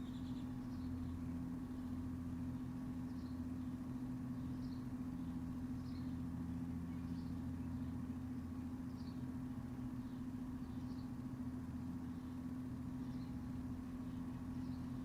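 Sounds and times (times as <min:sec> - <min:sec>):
bird chirping: 0:00.0 - 0:01.2
low machine hum: 0:00.0 - 0:15.0.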